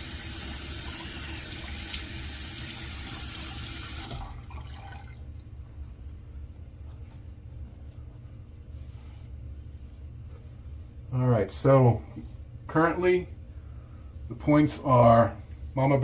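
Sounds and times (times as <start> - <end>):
tap water splashing into sink: 0.0 - 5.4.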